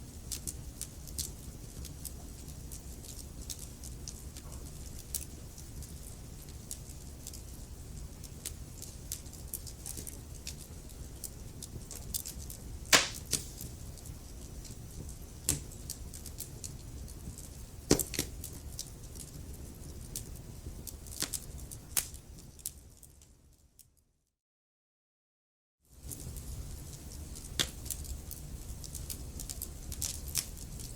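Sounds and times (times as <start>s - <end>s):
wood fire crackling: 0.1s - 23.2s, 26.0s - 30.9s
burning wood popping: 12.9s - 14.1s.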